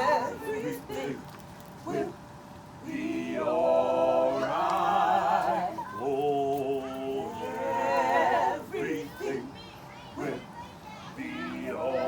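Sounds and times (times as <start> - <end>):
voices singing in harmony: 0.0 - 1.2, 1.8 - 2.2, 2.8 - 9.6, 10.2 - 10.5, 11.2 - 12.0.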